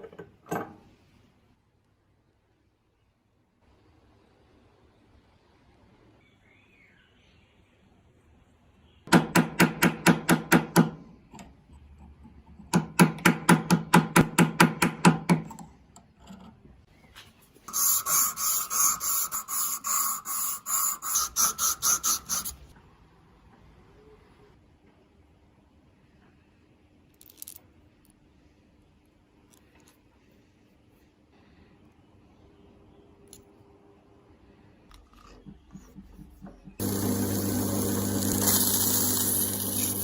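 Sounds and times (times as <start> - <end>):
hand tool scraping rusty metal: 17.7 - 22.6, 36.8 - 40.0.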